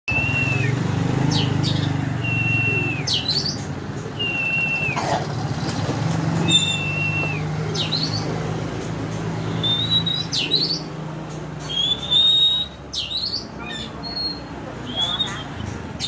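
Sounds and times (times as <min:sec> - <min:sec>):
bird singing whistles: 0:00.1 - 0:00.8, 0:01.4 - 0:03.6, 0:04.2 - 0:05.0, 0:06.4 - 0:08.2, 0:09.5 - 0:10.9, 0:11.6 - 0:15.6.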